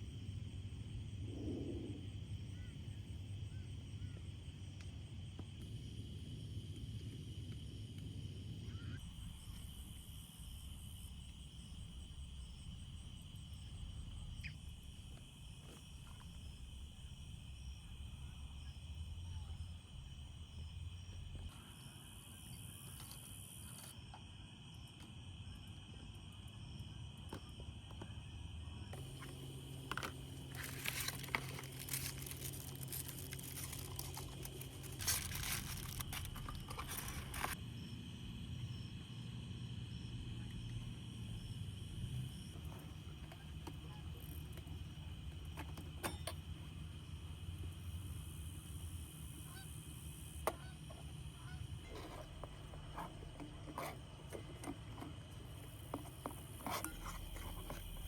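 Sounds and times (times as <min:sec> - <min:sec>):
insects trilling: 0:00.0 - 0:58.0
low steady hum: 0:28.2 - 0:58.0
sharp crackles and clicks: 0:29.0 - 0:37.6.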